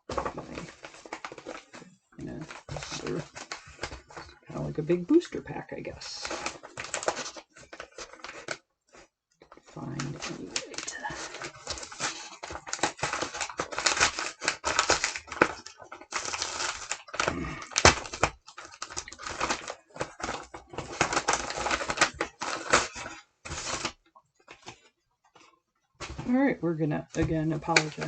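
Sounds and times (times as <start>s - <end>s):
padded envelope tearing: 0.1s - 4.4s, 6.0s - 8.6s, 9.9s - 24.8s, 27.2s - 28.0s.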